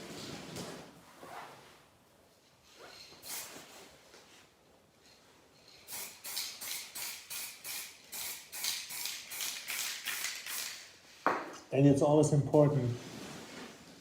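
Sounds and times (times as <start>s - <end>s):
spray paint can hissing: 3.2s - 3.7s, 5.9s - 10.9s.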